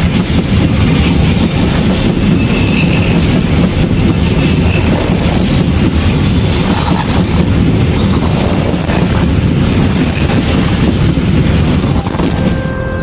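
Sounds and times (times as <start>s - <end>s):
train wheels rumbling on rails: 0.0s - 13.0s
wheel squeal: 2.2s - 3.4s, 4.0s - 7.4s.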